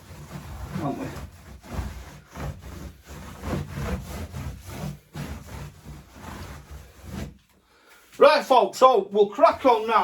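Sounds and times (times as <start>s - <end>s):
scraping on work surface: 0.0s - 7.4s.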